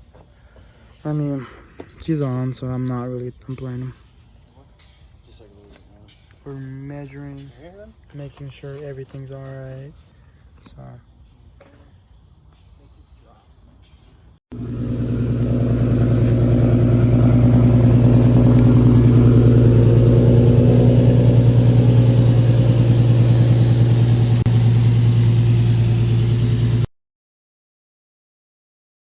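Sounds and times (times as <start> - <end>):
car engine running: 14.5 - 26.9.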